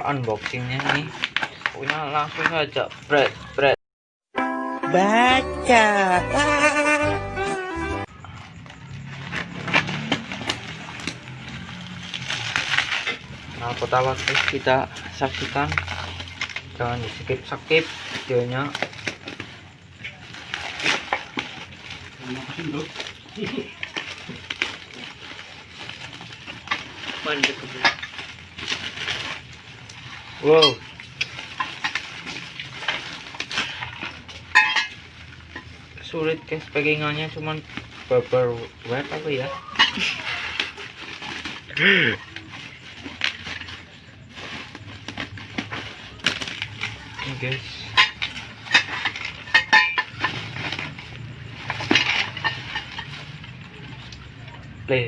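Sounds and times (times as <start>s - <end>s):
packaging ripping: 0.0s - 3.6s, 8.5s - 54.2s
bubble wrap crinkling: 0.0s - 3.8s, 8.0s - 54.8s
metal exhaust parts clinking: 26.1s - 55.0s.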